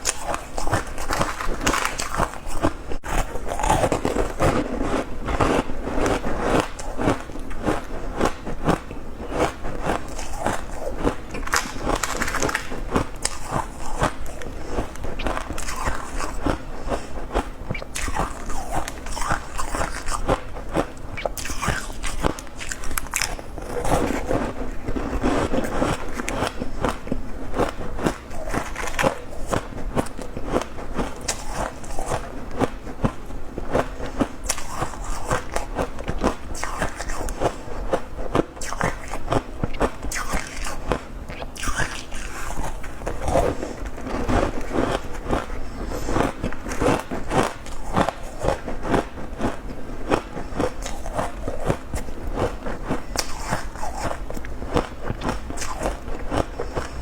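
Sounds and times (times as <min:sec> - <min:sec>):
person chewing crunchy ice: 0:00.0 - 0:57.0.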